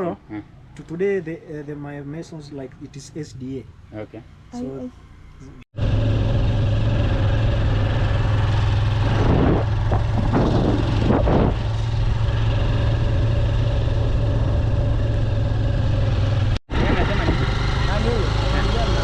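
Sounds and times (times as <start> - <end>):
vehicle engine running: 4.6 - 19.0.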